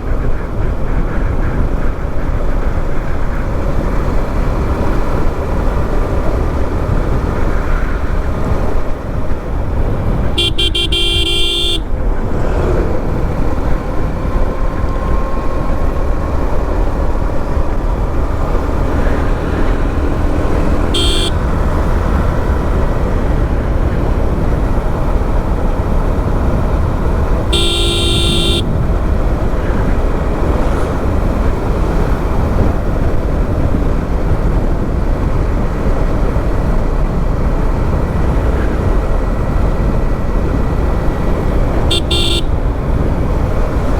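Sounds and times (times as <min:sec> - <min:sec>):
wind rush: 0:00.0 - 0:27.6, 0:28.2 - 0:43.9
motorcycle engine rumble: 0:00.0 - 0:43.9
vehicle horn honking: 0:10.3 - 0:12.0, 0:20.5 - 0:22.1, 0:27.4 - 0:28.8, 0:41.9 - 0:42.7.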